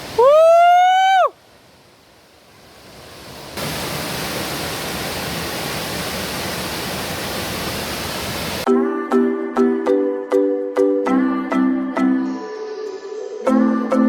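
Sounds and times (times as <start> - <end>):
waterfall rushing: 0.0 - 1.8, 2.5 - 8.7.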